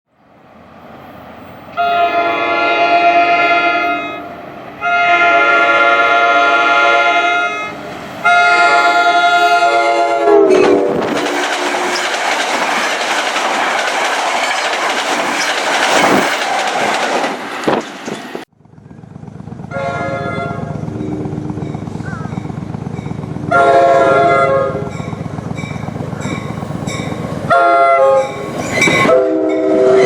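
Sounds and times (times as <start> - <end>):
train horn blasts: 1.7 - 11.8, 19.7 - 21.8, 23.4 - 25.0, 27.5 - 30.0
train wheels clattering on rails: 10.2 - 18.5, 24.8 - 29.7.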